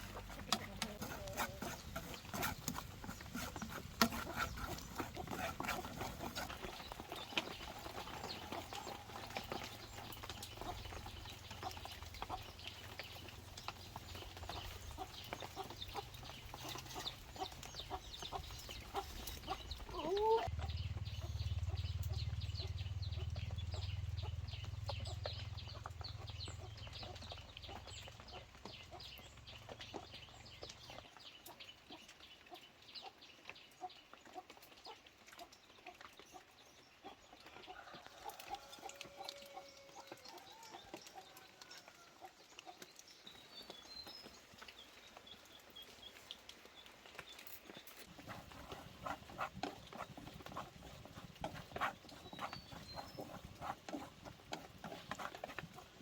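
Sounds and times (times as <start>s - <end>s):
chickens clucking: 0.0s - 31.0s, 48.1s - 56.0s.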